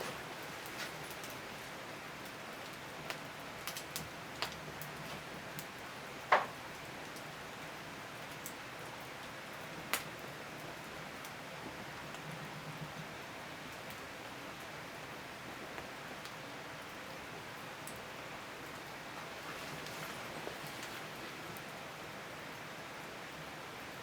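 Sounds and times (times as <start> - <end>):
firewood crackling and popping: 0.0 - 12.2, 17.8 - 22.1.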